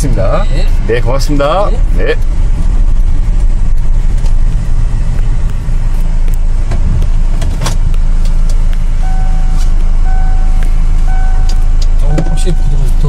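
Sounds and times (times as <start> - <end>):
car engine and road rumble: 0.0 - 13.0
parking sensor beeping: 9.0 - 13.0.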